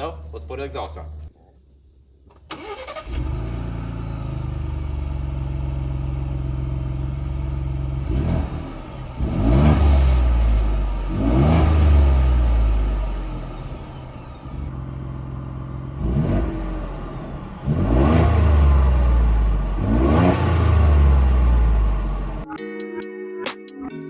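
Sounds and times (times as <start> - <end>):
engine cranking and starting: 2.3 - 4.6
engine revving: 2.5 - 22.5
engine idling: 2.6 - 22.4.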